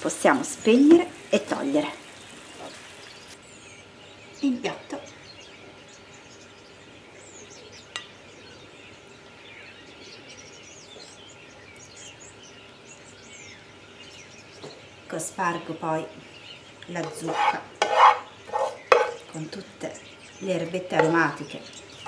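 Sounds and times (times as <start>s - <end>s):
small birds chirping: 0.0s - 22.0s
spatula clinking on ceramic plate: 17.0s - 19.2s.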